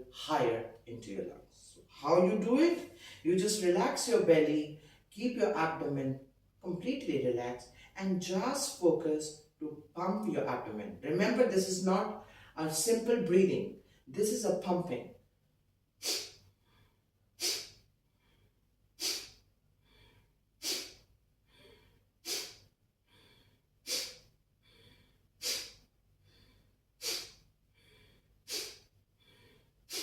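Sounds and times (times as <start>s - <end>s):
faint inhales: 2.9s - 3.2s, 12.2s - 12.6s, 16.0s - 30.0s
forceful nasal exhalations: 16.0s - 30.0s.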